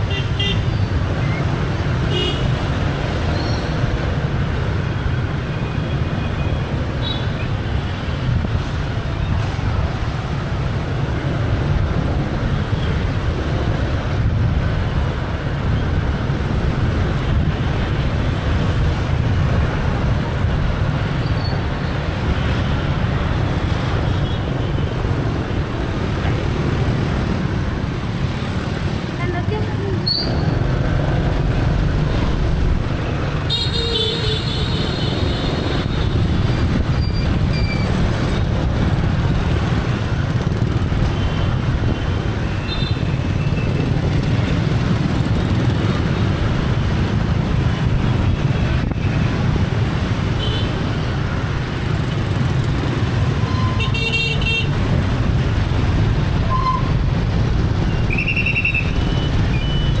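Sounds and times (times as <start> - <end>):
motorbike engine and road noise: 0.0 - 60.0
vehicle horns honking: 33.5 - 35.6, 53.4 - 54.7.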